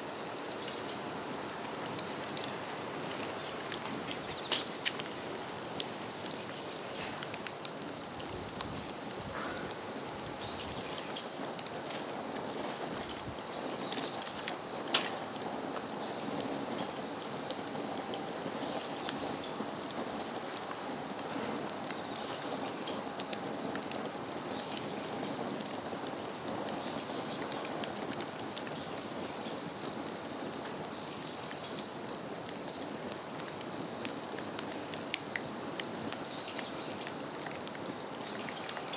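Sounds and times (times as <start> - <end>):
bonfire crackling: 0.0 - 38.9
sharp snap of fire: 4.5 - 5.2, 14.4 - 15.2
thin high whistle: 6.4 - 14.2.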